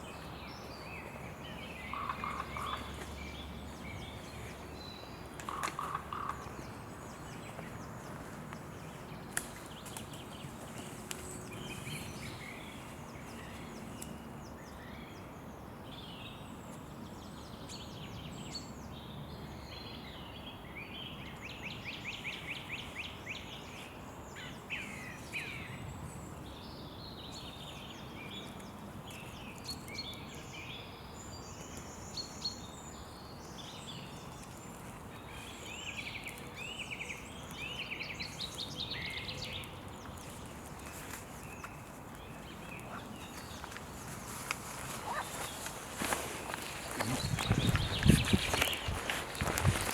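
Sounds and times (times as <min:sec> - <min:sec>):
steady outdoor hiss: 0:00.0 - 0:49.9
small birds chirping: 0:24.8 - 0:49.9.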